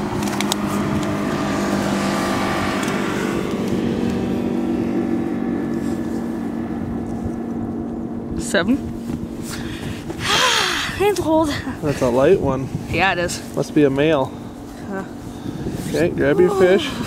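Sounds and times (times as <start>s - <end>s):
noisy water wash: 0.0s - 17.0s
outboard motor running: 0.0s - 17.0s.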